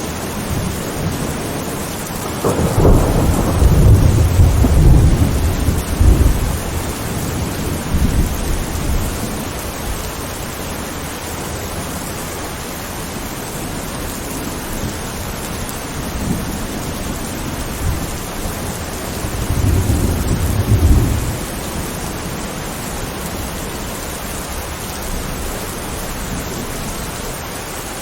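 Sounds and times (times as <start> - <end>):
thunder rumbling: 0.0 - 10.1, 13.8 - 23.5
rain hissing: 0.0 - 28.0.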